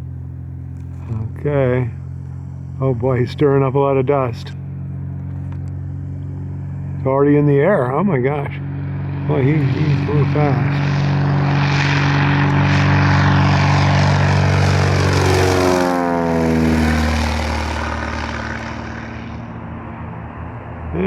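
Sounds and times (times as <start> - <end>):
propeller plane flying past: 0.0 - 21.0.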